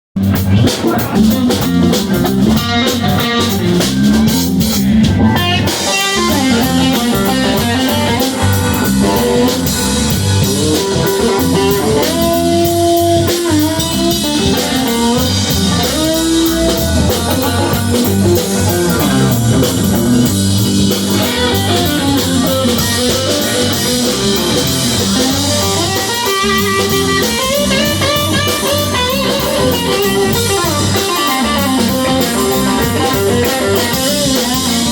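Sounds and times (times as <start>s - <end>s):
drum kit: 0.2s - 34.9s
live band guitar music: 0.2s - 34.9s
long held guitar notes: 0.2s - 34.9s.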